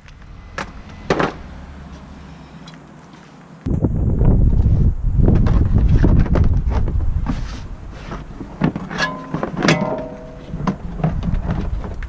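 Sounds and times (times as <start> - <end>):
wind on microphone: 3.6 - 12.0
sharp metallic knocks: 8.8 - 11.7.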